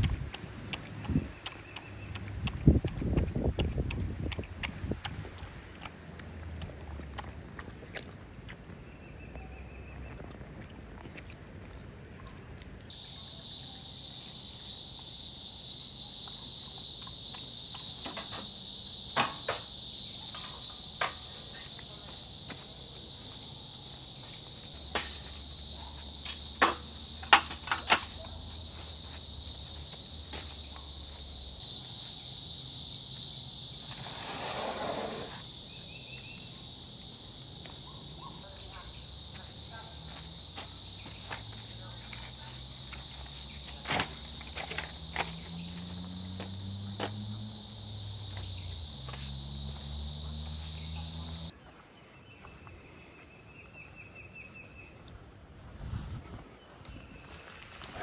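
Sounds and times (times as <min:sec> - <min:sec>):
high-pitched insect chorus: 0:12.9 - 0:51.5.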